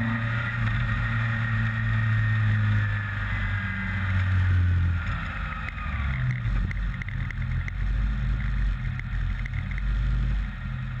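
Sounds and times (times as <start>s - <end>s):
car engine running at low revs: 0.0s - 11.0s
light clicks and rattles: 5.5s - 10.0s.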